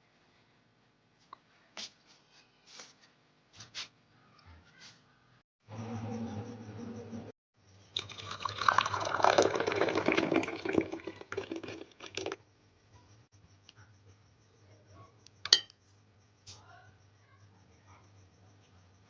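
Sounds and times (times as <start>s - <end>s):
liquid pouring and splashing: 7.9s - 12.4s.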